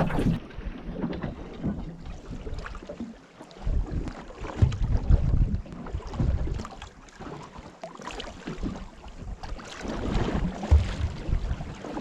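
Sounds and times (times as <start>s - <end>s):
wind buffeting microphone: 0.0s - 2.6s, 3.6s - 6.7s, 9.3s - 12.0s
waves slapping boat hull: 0.0s - 12.0s.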